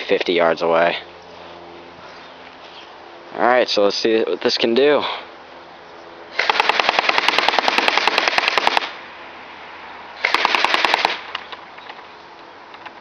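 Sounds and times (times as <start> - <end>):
airsoft rifle firing full auto: 6.3 - 9.0, 10.2 - 11.3.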